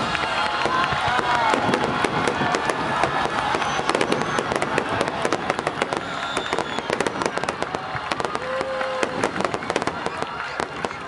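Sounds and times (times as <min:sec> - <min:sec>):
fireworks crackling and popping: 0:00.0 - 0:11.0.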